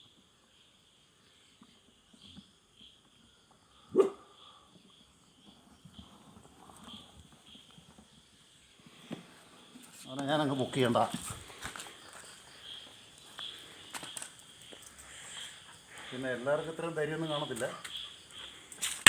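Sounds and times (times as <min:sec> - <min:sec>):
insects chirping: 0:00.0 - 0:19.0
dog barking: 0:03.9 - 0:04.3.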